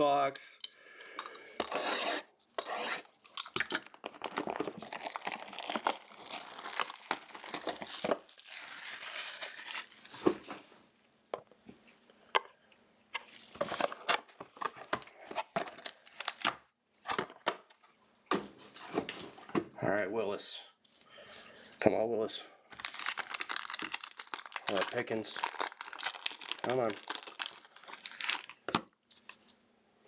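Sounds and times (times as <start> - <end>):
plastic wrapping tearing and crinkling: 3.0 - 10.2, 15.4 - 16.5, 22.7 - 28.7.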